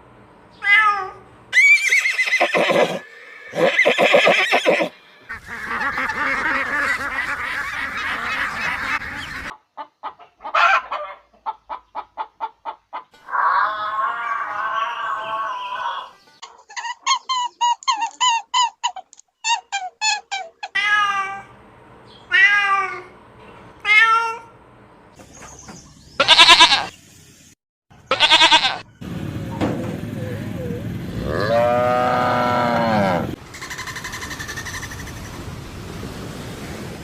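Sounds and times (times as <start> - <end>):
animal calls: 1.6 - 9.5, 30.2 - 35.4
long low animal call: 30.2 - 33.8.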